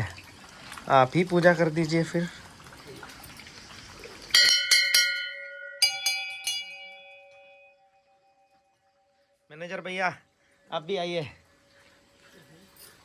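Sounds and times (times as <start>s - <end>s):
hand-rung temple bells: 4.3s - 8.6s.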